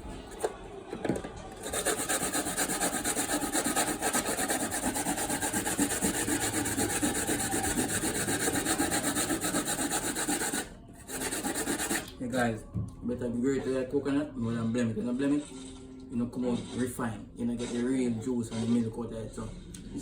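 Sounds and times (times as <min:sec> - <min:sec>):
coconut rasping on a grater: 0:01.6 - 0:12.2.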